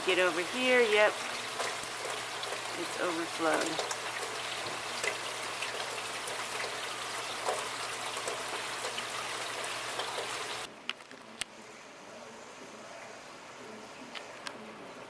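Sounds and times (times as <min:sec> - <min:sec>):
drips and splashes: 0:00.0 - 0:10.7
heavy rain falling: 0:00.0 - 0:10.7.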